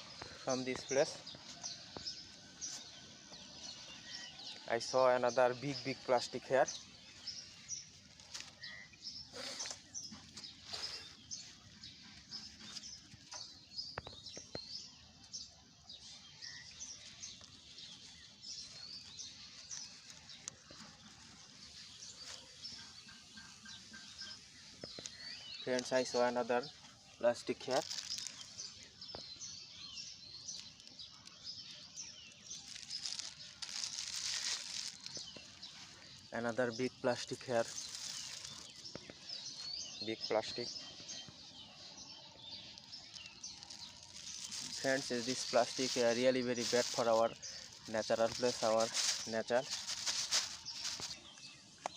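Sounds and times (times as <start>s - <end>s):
faint outdoor background: 0.0s - 51.9s
small birds chirping: 0.0s - 51.9s
brief rustles: 42.8s - 51.2s.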